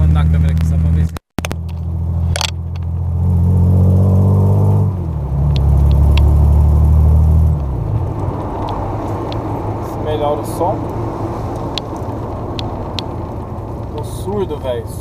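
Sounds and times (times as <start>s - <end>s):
car engine deep rumble revving: 0.0s - 15.0s
microphone clicks: 0.5s - 3.1s.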